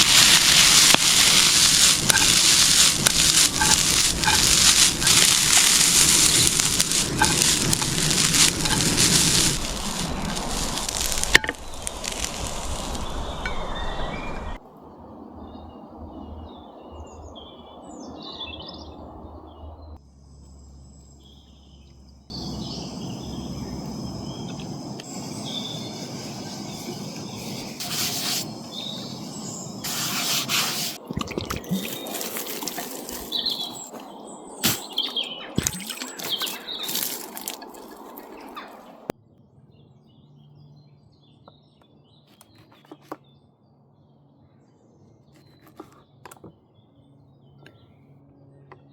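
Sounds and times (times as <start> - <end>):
steady background hiss: 0.0 - 14.6, 21.9 - 31.0
small birds chirping: 0.0 - 39.1.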